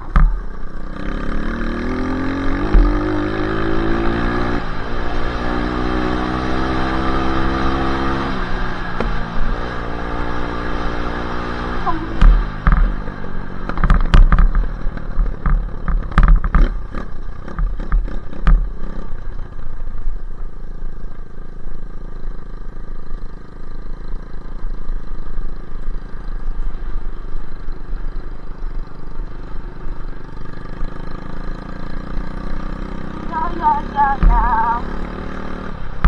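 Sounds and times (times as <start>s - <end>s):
sharp knocks and clatter: 0.0s - 0.7s, 2.6s - 3.9s, 12.1s - 19.1s
dirt bike engine running: 0.0s - 36.0s.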